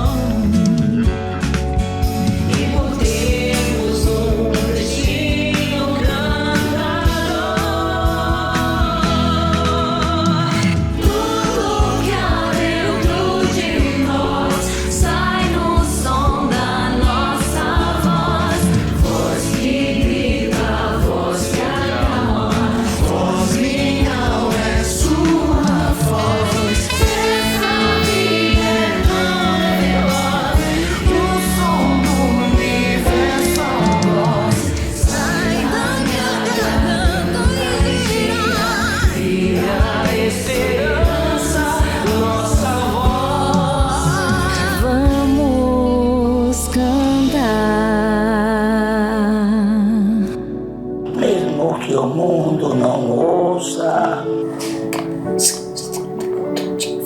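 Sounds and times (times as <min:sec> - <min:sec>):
band with steady beat: 0:00.0 - 0:44.3
bass line: 0:00.0 - 0:51.0
group singing in harmony: 0:00.0 - 0:55.5.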